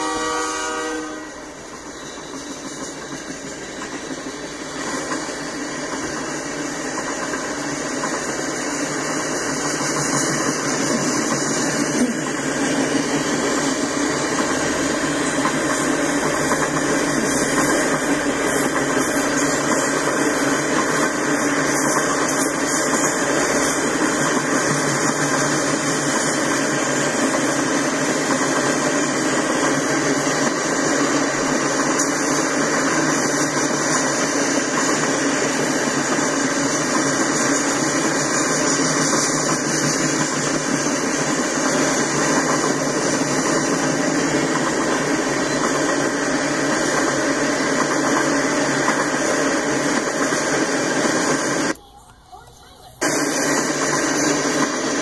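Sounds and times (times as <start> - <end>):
locomotive horn: 0.0 - 1.6
freight train rolling on rails: 0.0 - 55.0.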